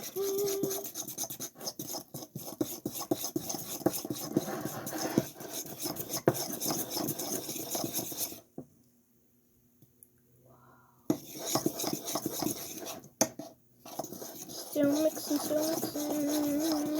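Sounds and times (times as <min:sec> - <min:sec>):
utensil scraping a bowl: 0:00.0 - 0:08.5, 0:11.1 - 0:16.9.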